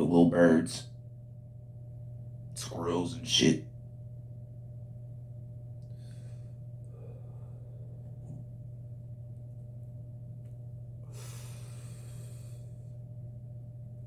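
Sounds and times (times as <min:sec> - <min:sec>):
low electrical hum: 0:00.0 - 0:14.0
person breathing: 0:05.9 - 0:08.2, 0:11.0 - 0:13.0.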